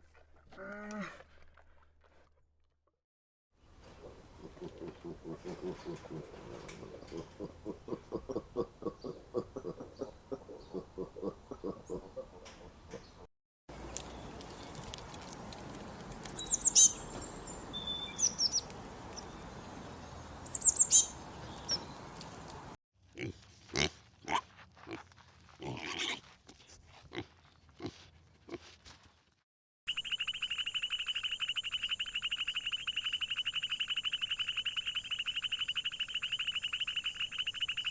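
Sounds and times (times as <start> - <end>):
short grunting animal calls: 4.0 - 12.9
high bird chirps: 16.3 - 19.3, 20.4 - 22.0, 29.9 - 37.9.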